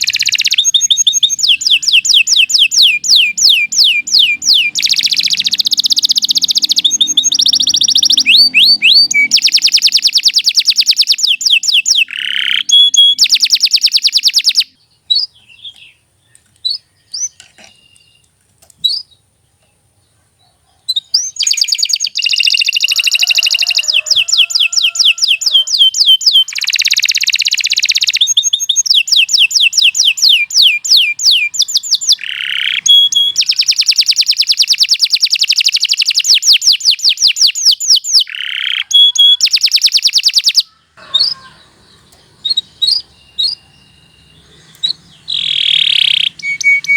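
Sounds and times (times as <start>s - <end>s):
canary singing trills: 0.0s - 19.3s, 20.1s - 46.9s
faint bird chirps: 0.0s - 46.9s.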